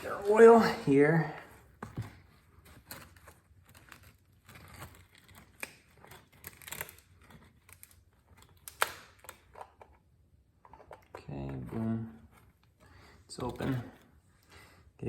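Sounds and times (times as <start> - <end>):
plastic bottle crinkling and tearing: 0.0 - 10.0.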